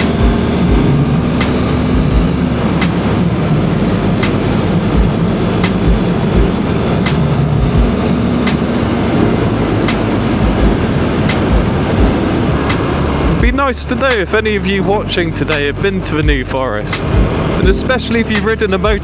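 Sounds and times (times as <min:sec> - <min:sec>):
wind rush on helmet: 0:00.0 - 0:13.5
motorcycle engine: 0:00.0 - 0:14.7.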